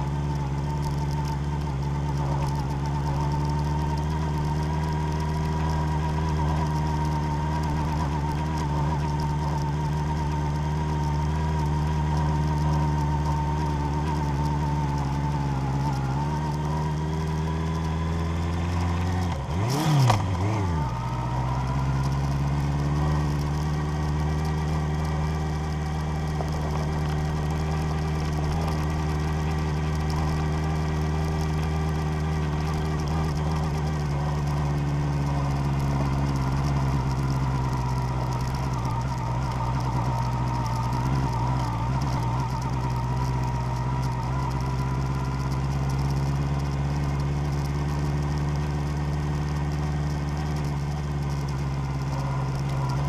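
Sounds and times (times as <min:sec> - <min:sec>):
vehicle engine while driving: 0:00.0 - 0:53.0.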